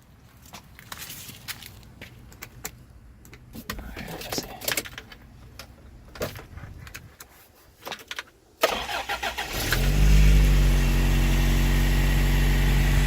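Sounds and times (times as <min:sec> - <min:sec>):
starter cranking engine: 0:08.6 - 0:11.4
engine idling: 0:08.7 - 0:13.0.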